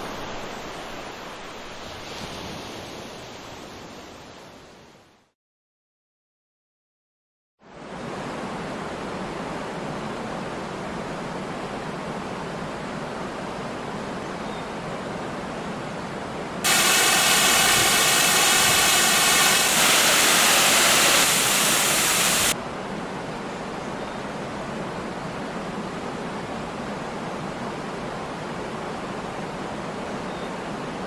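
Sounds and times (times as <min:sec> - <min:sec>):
loud hissy rush of water: 0:16.6 - 0:22.6
waterfall rushing: 0:16.7 - 0:22.6.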